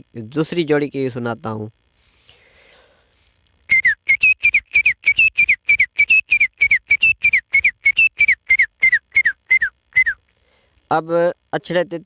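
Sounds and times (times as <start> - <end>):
man whistling bird calls: 3.7 - 10.2.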